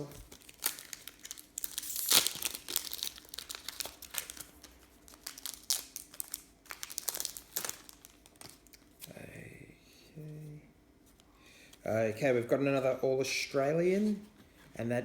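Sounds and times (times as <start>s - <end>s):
foil wrappers crinkling: 0.0s - 9.1s.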